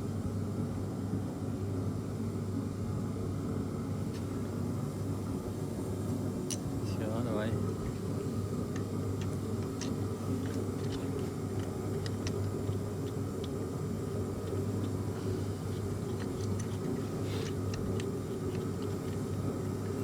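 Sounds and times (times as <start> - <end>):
low background hum: 0.0 - 20.0
light clicks and taps: 7.8 - 20.0.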